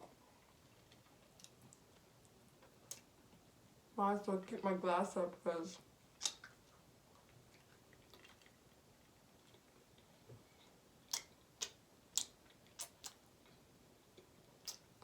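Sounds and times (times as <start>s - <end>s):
person chewing food: 0.3s - 3.2s, 6.1s - 15.0s.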